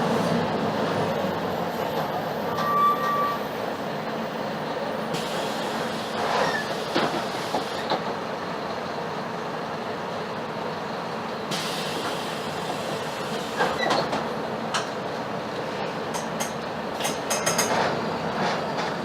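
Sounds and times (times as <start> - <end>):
diesel bus engine: 0.0 - 19.0
road noise: 0.0 - 19.0
bus body rattling: 11.5 - 19.0.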